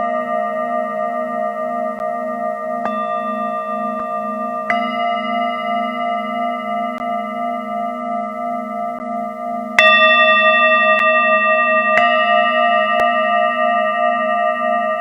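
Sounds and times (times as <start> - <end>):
singing bowl struck: 0.0 - 15.0
singing bowls ringing: 0.0 - 15.0.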